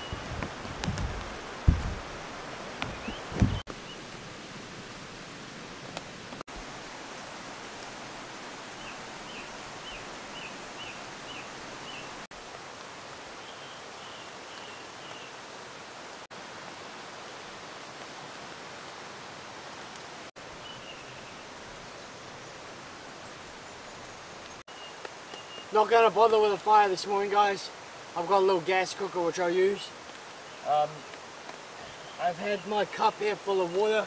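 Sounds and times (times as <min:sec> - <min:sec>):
running water rushing: 0:00.0 - 0:34.0
bird chirping: 0:02.8 - 0:04.0, 0:20.6 - 0:21.5, 0:23.6 - 0:25.8.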